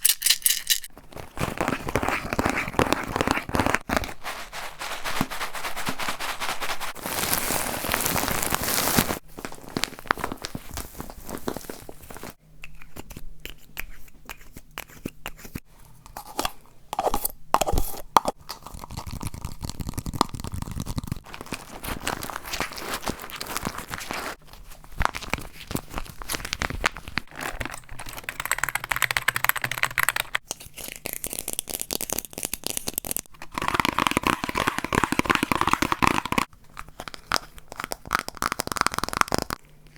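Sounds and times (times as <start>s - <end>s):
crunching and crinkling objects: 0.9s - 12.4s, 18.3s - 28.3s, 30.4s - 39.9s.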